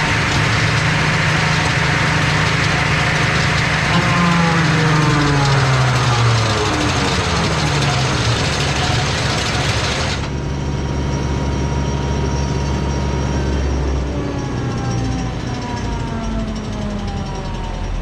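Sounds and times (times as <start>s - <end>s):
loud rushing noise: 0.0s - 10.4s
engine droning: 0.0s - 18.0s.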